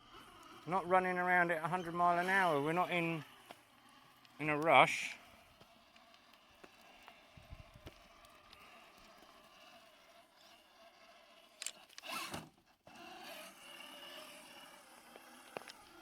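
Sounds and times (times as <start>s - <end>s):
toy truck motor whining: 0.0s - 16.0s.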